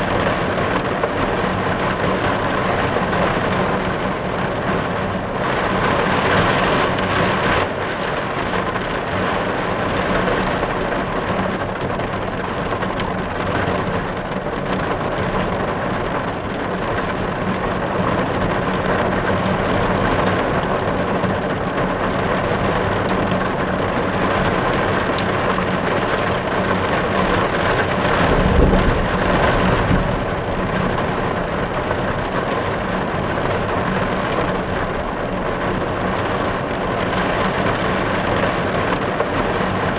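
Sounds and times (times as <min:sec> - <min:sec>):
rain on a car roof: 0:00.0 - 0:39.9
low rumble: 0:28.0 - 0:32.3.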